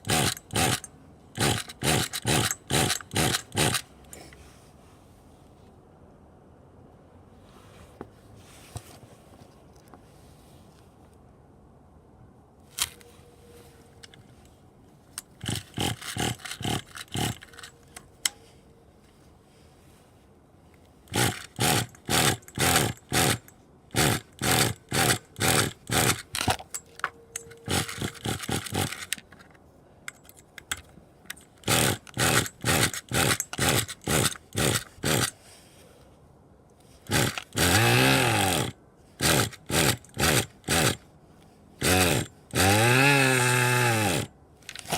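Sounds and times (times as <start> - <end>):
model engine turning over: 0.0 - 3.9, 15.4 - 17.7, 21.1 - 26.8, 27.4 - 29.2, 31.6 - 35.3, 37.1 - 41.0, 41.8 - 44.9.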